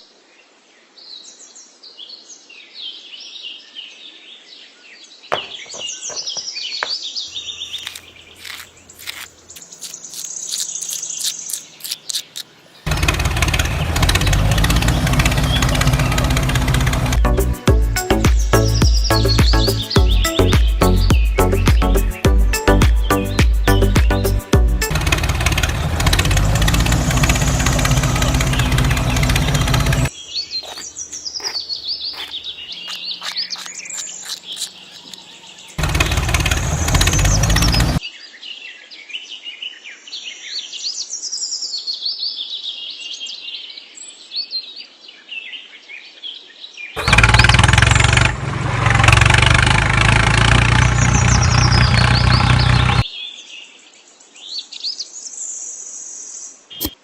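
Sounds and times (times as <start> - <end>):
birds chirping: 5.3 - 38.0, 49.0 - 53.1
music: 17.2 - 25.4.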